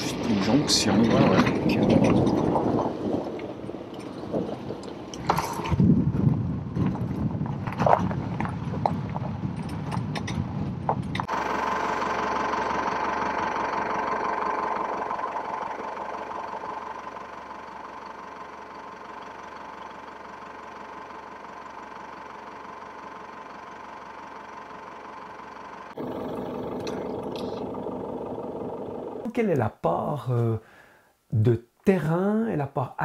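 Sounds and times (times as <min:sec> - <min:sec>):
car engine idling: 0:00.0 - 0:07.5, 0:10.9 - 0:29.3.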